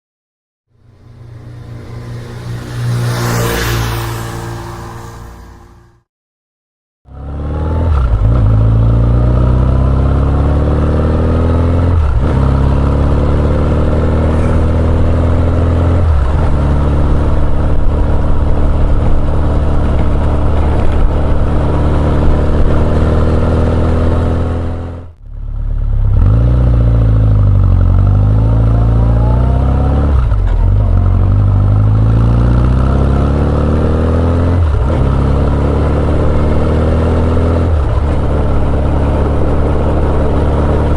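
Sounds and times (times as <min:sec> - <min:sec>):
motorcycle accelerating through gears: 0:00.8 - 0:06.0, 0:07.1 - 0:40.9.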